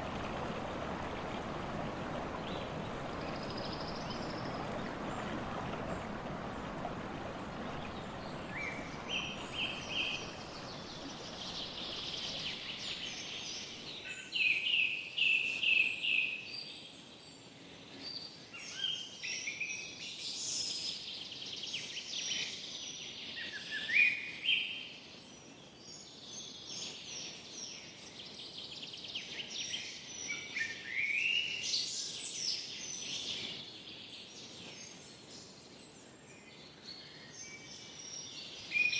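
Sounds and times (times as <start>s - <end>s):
steady rushing wash: 0.0s - 13.8s
songbirds singing: 0.0s - 17.4s.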